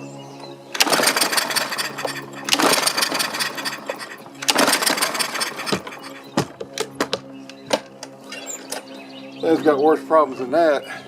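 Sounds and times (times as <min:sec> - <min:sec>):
recoil starter rope pull: 0:00.7 - 0:06.3
mower engine knocks and clunks: 0:00.7 - 0:08.1.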